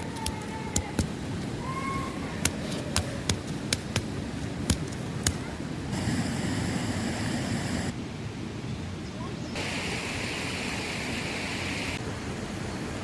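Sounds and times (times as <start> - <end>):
sharp irregular taps: 0.0 - 1.5, 2.4 - 5.5.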